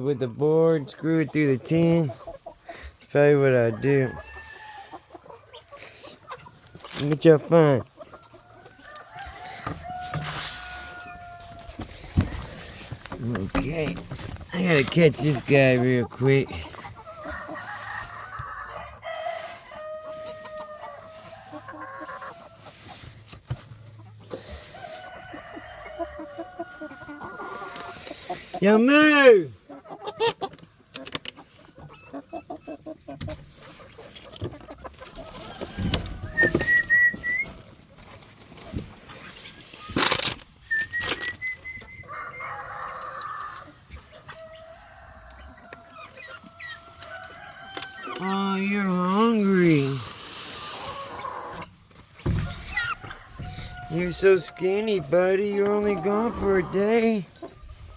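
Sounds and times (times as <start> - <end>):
chickens clucking: 0.0 - 57.9
roosters crowing: 3.6 - 5.9, 6.5 - 14.0, 14.6 - 23.2, 23.8 - 30.3, 34.6 - 37.4, 41.3 - 57.9
rooster crowing: 46.8 - 48.3, 52.4 - 54.7.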